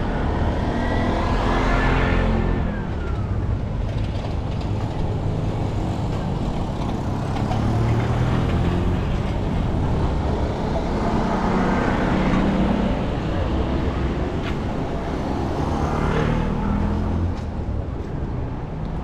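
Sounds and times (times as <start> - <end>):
vehicle engines rumbling: 0.0 - 19.0.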